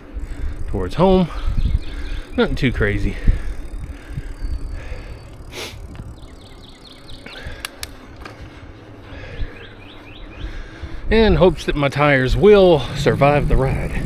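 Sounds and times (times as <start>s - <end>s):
wind rumbling on microphone: 0.0s - 7.7s, 10.4s - 14.0s
sharp clicks: 0.0s - 8.4s
bicycle riding noise: 0.0s - 14.0s
birds chirping: 0.0s - 14.0s.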